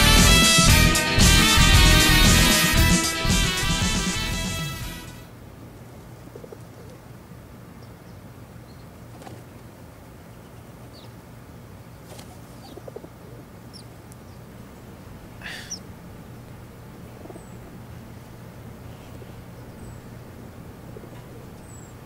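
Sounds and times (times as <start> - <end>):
small birds chirping faintly: 5.6 - 22.0
low hum: 14.3 - 22.0.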